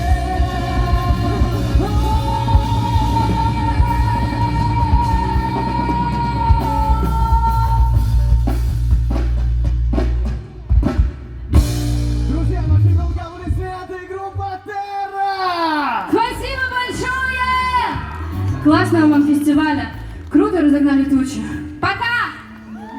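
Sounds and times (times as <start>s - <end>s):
person singing: 0.0s - 8.7s
rock band playing: 0.0s - 14.4s, 16.1s - 22.9s.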